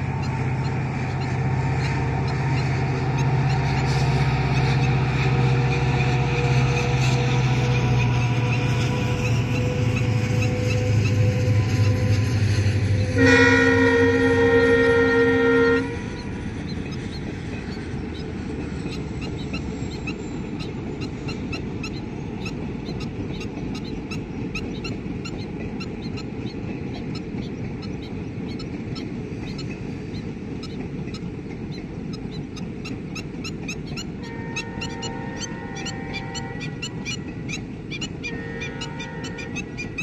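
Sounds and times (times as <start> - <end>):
train coaches rumbling: 0.0 - 40.0
train horn: 5.3 - 16.4, 34.2 - 40.0.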